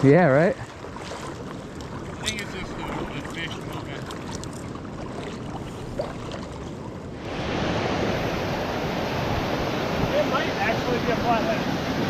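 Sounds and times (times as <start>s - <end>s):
wind: 0.0s - 12.0s
river water rushing: 0.6s - 12.0s.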